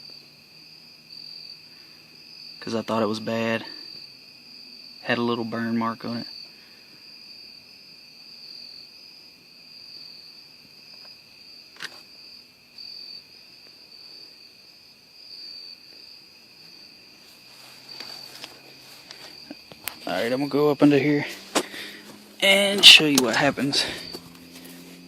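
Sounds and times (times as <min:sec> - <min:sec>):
crickets chirping: 0:00.0 - 0:25.0
small clicks: 0:11.8 - 0:12.0.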